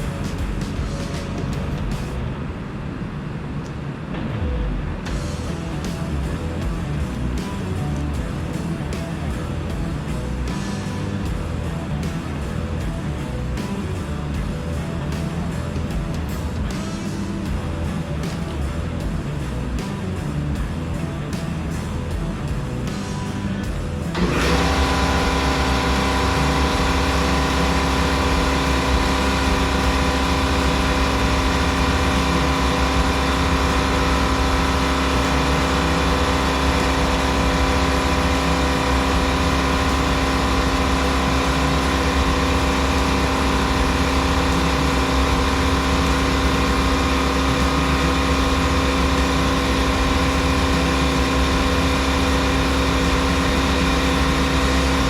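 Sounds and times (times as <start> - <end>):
machine drone: 0.0 - 55.0.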